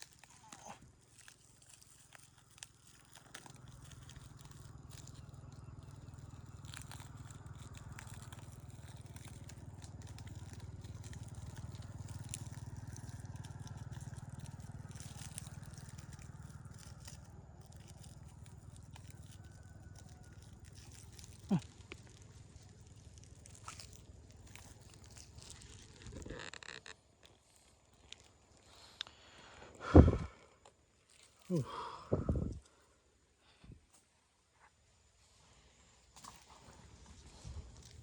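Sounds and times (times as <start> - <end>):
light clicks and crackles: 0.0 - 29.7
small engine running: 0.8 - 29.6.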